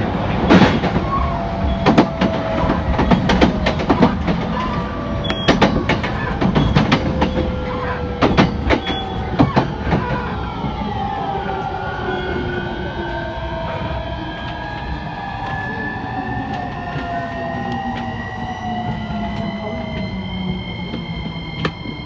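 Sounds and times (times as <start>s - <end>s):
train inverter whining: 0.0s - 22.0s
wheels rumbling on track: 0.0s - 22.0s
rail-joint clicks: 0.5s - 10.8s, 16.4s - 22.0s.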